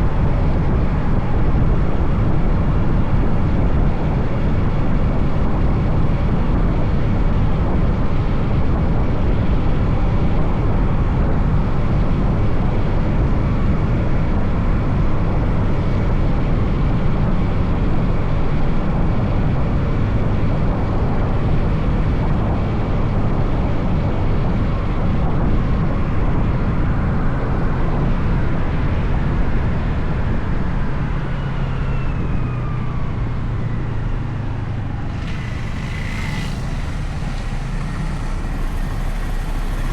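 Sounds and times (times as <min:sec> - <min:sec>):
motorcycle engine and wind rush: 0:34.5 - 0:39.9.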